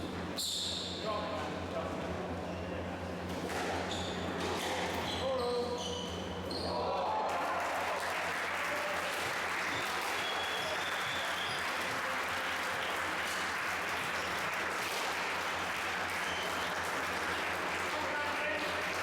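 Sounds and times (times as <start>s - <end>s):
spectators clapping: 7.0s - 19.0s.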